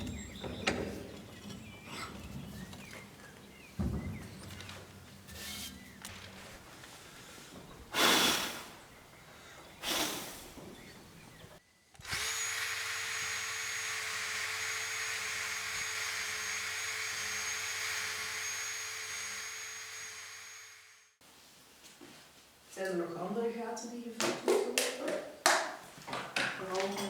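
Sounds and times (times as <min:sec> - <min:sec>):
electric power tool whining: 0:11.9 - 0:21.1.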